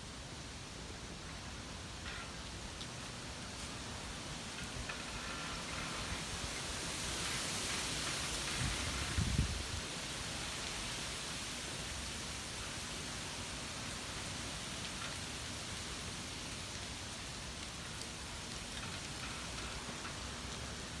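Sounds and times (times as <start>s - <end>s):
wind rumble on microphone: 4.8s - 10.0s.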